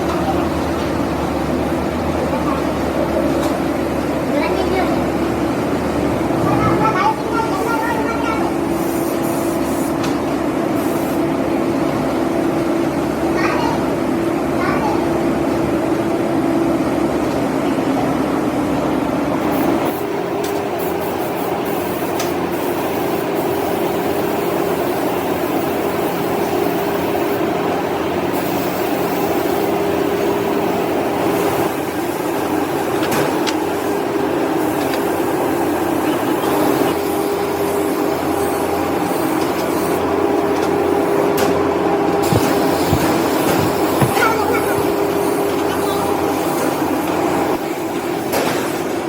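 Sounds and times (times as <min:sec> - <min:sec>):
workshop machinery humming: 0:00.0 - 0:49.0
noisy clatter: 0:33.0 - 0:33.7, 0:40.5 - 0:46.8.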